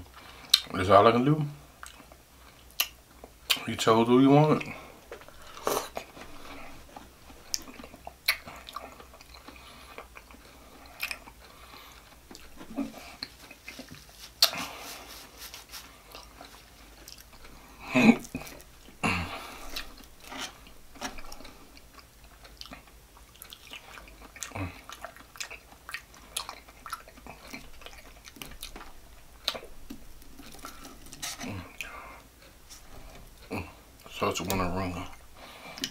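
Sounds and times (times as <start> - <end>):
man chewing meat: 0.0 - 0.7, 1.6 - 3.7, 4.6 - 35.9.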